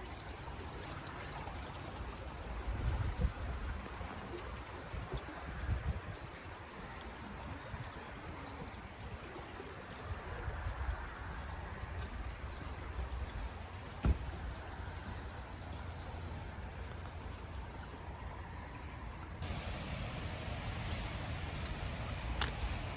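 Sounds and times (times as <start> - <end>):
low steady rumble: 11.3 - 22.9.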